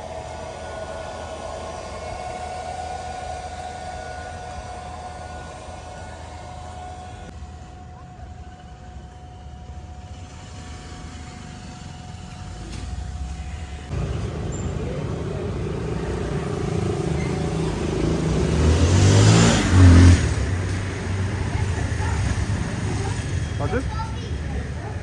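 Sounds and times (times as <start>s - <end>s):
motorcycle engine accelerating: 11.1s - 23.8s.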